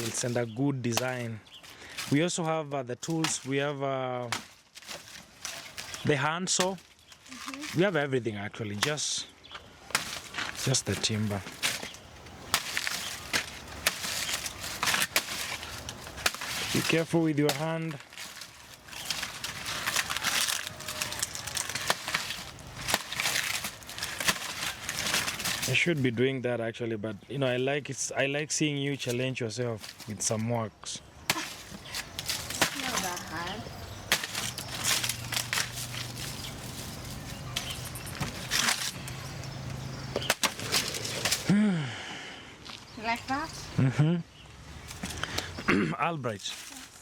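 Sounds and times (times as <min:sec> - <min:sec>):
machete chopping plants: 0:00.0 - 0:02.3, 0:03.0 - 0:08.0, 0:08.7 - 0:09.2, 0:09.8 - 0:25.9, 0:31.3 - 0:41.6
rustling: 0:00.0 - 0:26.0, 0:28.9 - 0:30.5, 0:31.2 - 0:41.6, 0:44.5 - 0:45.6, 0:46.2 - 0:47.0.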